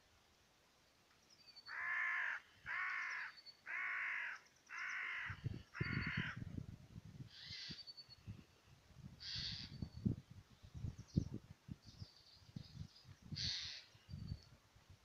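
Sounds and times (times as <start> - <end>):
small birds chirping: 0.9 - 3.7, 7.3 - 14.6
large bird cawing: 1.7 - 6.4, 13.4 - 13.9.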